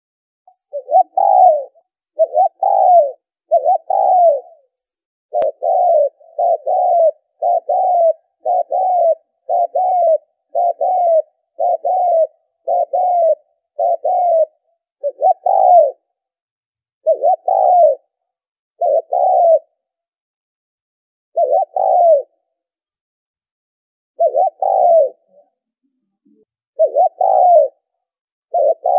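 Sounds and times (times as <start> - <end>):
dove cooing: 0.5 - 4.7, 5.3 - 16.1, 17.0 - 18.2, 18.8 - 19.8, 21.3 - 22.4, 24.2 - 25.6, 26.8 - 27.9, 28.5 - 28.9.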